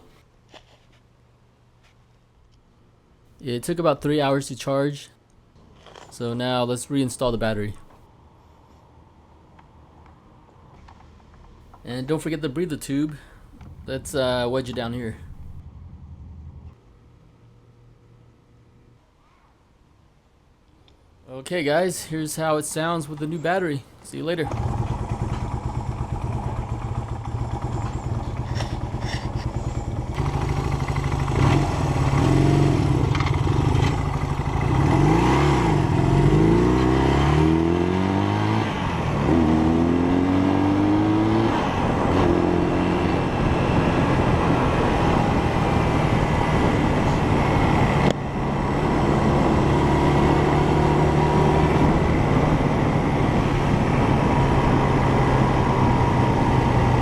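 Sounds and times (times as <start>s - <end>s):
motorcycle engine revving and idling: 24.4s - 48.0s.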